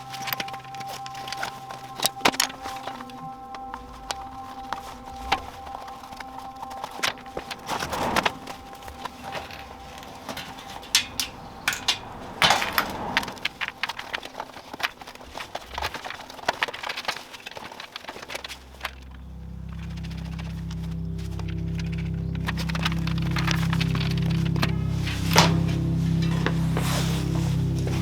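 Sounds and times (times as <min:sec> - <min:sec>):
hand tools clicking and knocking: 0:00.0 - 0:19.0
low steady hum: 0:00.0 - 0:28.0.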